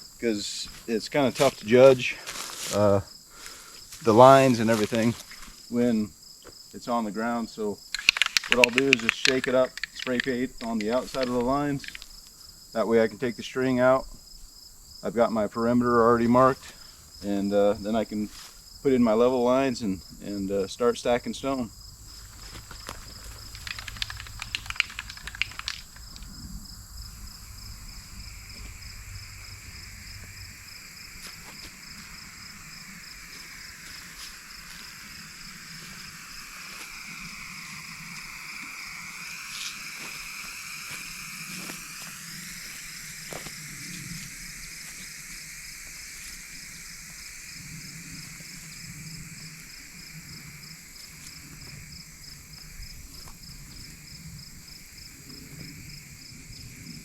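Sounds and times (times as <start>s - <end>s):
insects chirping: 0.0s - 57.0s
spray can rattling: 7.9s - 12.1s, 22.8s - 26.3s
spray paint hissing: 7.9s - 12.1s, 23.0s - 26.4s, 27.1s - 48.8s.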